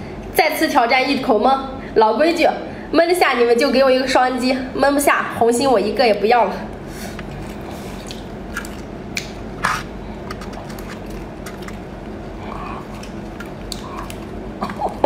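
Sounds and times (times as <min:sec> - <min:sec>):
low steady hum: 0:00.0 - 0:15.0
person chewing food: 0:07.1 - 0:15.0.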